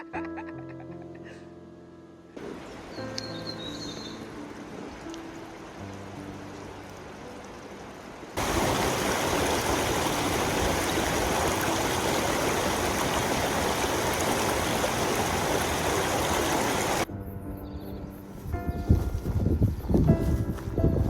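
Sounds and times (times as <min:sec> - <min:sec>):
soft music: 0:00.0 - 0:08.6, 0:17.0 - 0:21.0
rushing mountain water: 0:02.4 - 0:17.1.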